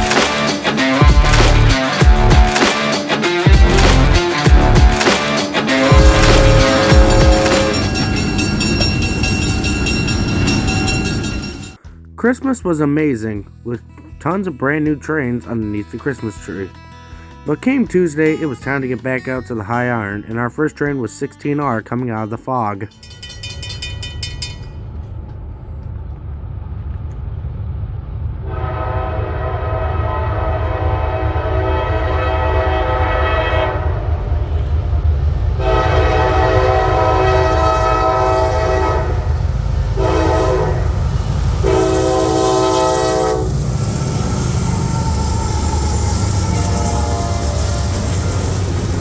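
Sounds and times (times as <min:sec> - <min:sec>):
freight train locomotive rumbling: 0:00.0 - 0:11.9, 0:23.0 - 0:49.0
locomotive air horn: 0:03.8 - 0:08.9, 0:28.4 - 0:34.0, 0:35.6 - 0:48.6.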